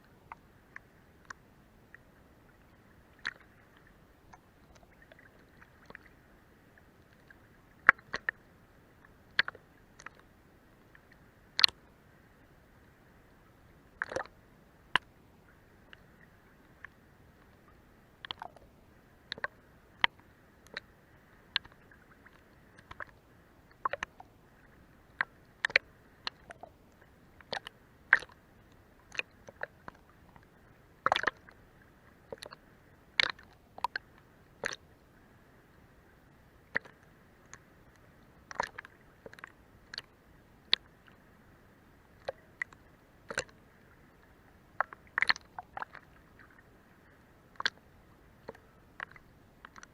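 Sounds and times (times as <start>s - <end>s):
quiet hiss: 0.0s - 49.9s
water slapping under boat hull: 18.2s - 18.7s, 31.0s - 31.5s, 38.5s - 39.5s.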